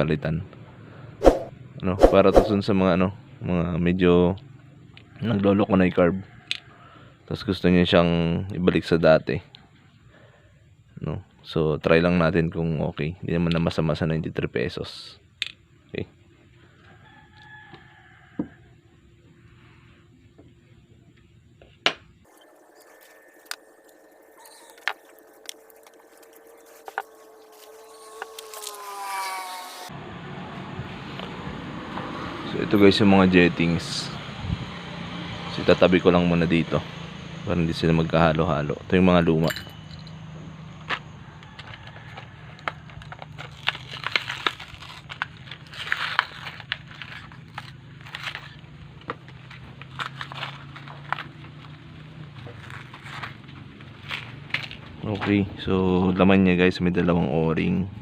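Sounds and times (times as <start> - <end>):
plastic packet crinkling: 22.3 - 28.8, 42.9 - 48.3
small metal parts clicking: 39.4 - 40.2.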